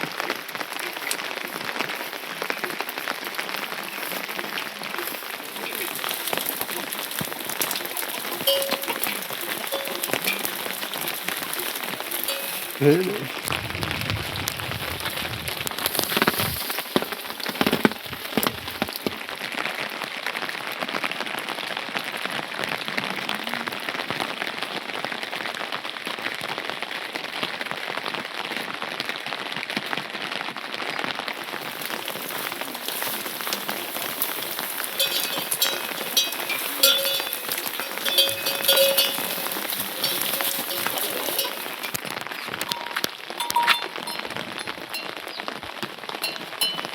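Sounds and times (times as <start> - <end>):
steady rain: 0.0 - 46.9.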